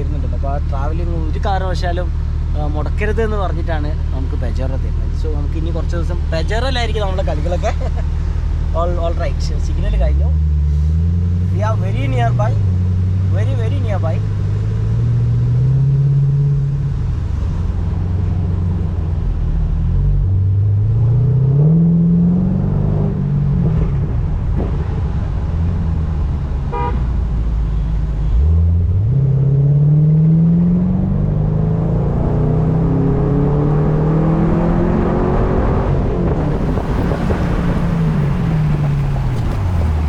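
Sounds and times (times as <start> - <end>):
car engine accelerating: 0.0 - 40.0
car horn toot: 26.7 - 27.1.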